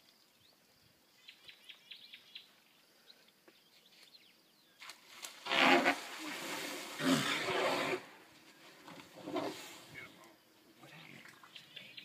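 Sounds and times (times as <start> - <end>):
faint bird chirping: 0.0 - 4.9, 9.9 - 12.0.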